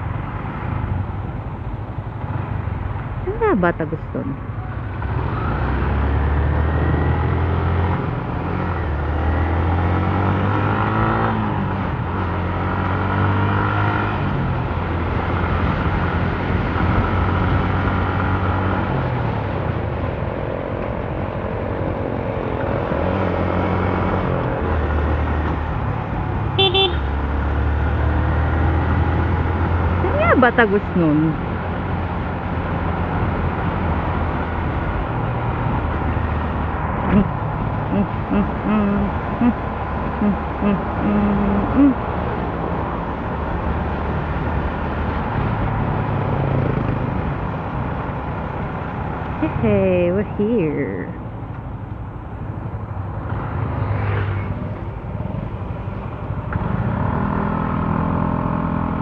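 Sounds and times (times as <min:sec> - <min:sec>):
road noise: 0:00.0 - 0:59.0
motorcycle engine: 0:22.2 - 0:49.8
horn beeps: 0:26.6 - 0:27.1.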